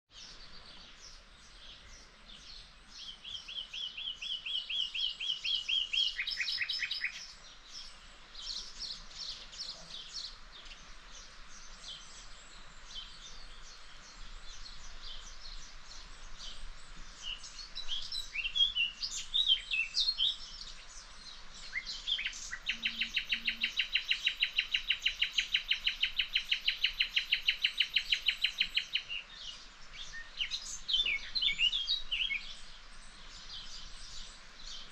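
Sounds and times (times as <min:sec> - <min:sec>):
nightingale singing: 0:00.1 - 0:34.9.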